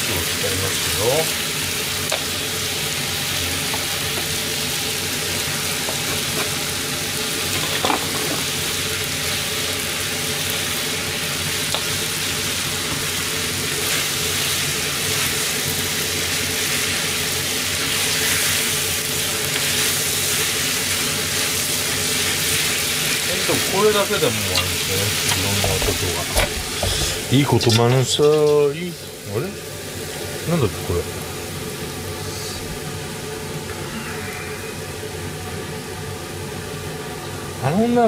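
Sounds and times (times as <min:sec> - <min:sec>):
food sizzling in a frying pan: 0:00.0 - 0:38.0
utensils clicking against pan: 0:24.5 - 0:28.6.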